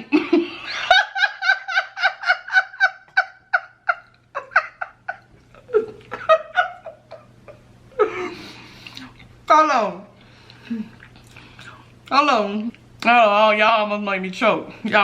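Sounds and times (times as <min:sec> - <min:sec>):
woman laughing hard: 0:00.0 - 0:08.5.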